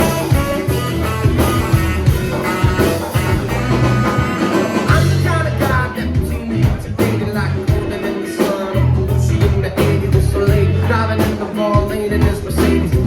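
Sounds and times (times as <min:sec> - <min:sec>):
amplified rock band playing: 0:00.0 - 0:13.0.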